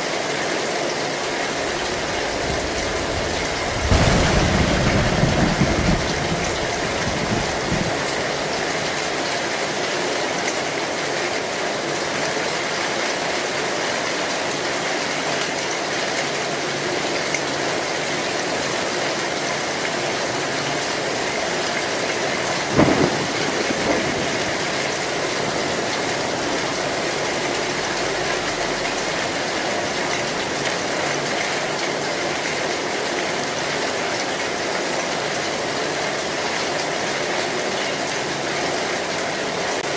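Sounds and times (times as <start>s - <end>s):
heavy rain on metal roof: 0.0s - 39.9s
loud thump: 3.8s - 7.7s.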